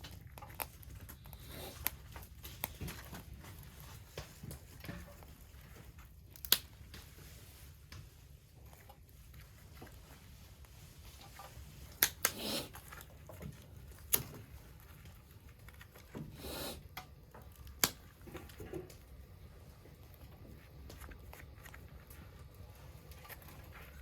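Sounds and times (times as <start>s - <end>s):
twig fire crackling: 6.2s - 7.2s, 11.8s - 24.0s.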